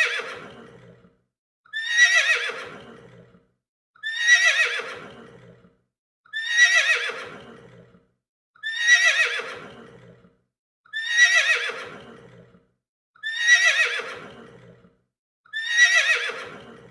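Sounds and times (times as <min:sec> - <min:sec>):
horse neighing: 0:00.0 - 0:01.1, 0:01.8 - 0:03.4, 0:04.0 - 0:05.7, 0:06.4 - 0:08.0, 0:08.6 - 0:10.2, 0:11.0 - 0:12.5, 0:13.2 - 0:14.8, 0:15.6 - 0:16.9.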